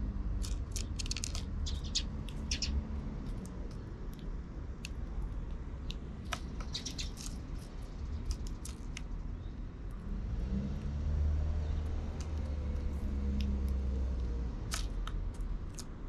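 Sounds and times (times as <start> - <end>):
low traffic rumble: 0.0 - 16.0
vehicle engine hum: 0.0 - 16.0
sparrows chirping: 0.6 - 3.9, 6.3 - 9.8, 11.4 - 13.2.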